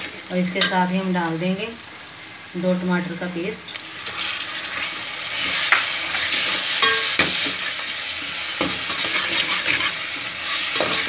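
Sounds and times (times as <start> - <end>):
food sizzling in hot oil: 0.0 - 11.0
metal ladle scraping pan: 4.7 - 7.8, 8.6 - 11.0.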